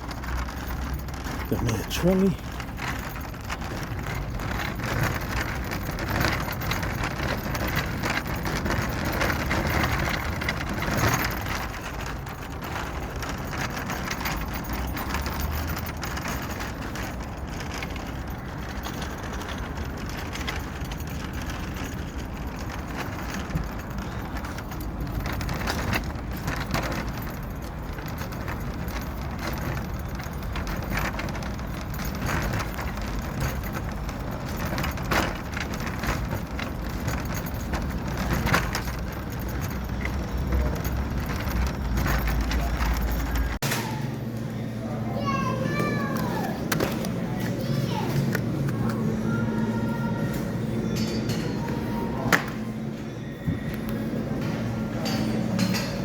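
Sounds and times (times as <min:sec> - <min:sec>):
shopping trolley rattling: 0:00.0 - 0:56.0.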